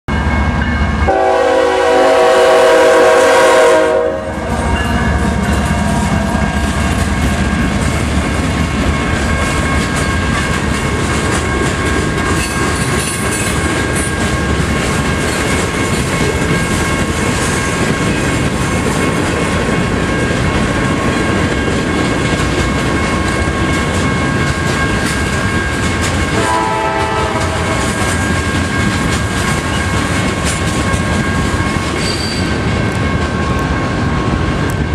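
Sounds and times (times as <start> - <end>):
freight train cars rumbling: 0.1 - 34.9
diesel locomotive horn: 1.0 - 5.1, 26.3 - 28.2
wheels clacking over rail joints: 4.7 - 34.9
high-pitched wheel squeal: 32.0 - 32.6.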